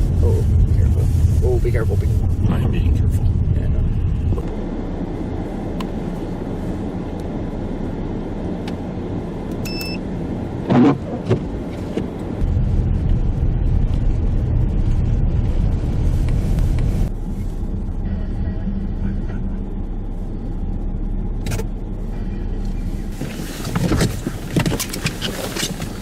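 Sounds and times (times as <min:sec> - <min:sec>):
road and wind noise: 0:00.0 - 0:26.0
vehicle driving rumble: 0:00.0 - 0:26.0
short beep: 0:09.6 - 0:10.0.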